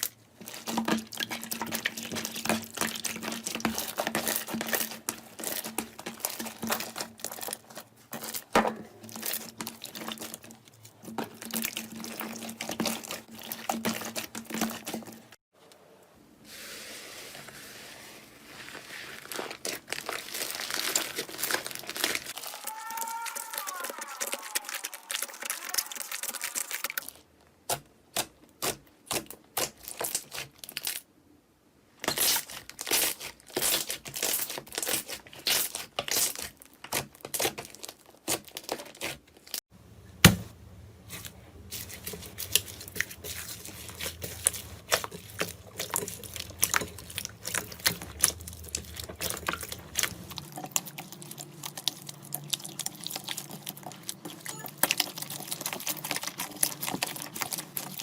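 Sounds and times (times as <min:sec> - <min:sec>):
slime crackling and popping: 0:19.2 - 0:27.1, 0:41.8 - 0:58.0.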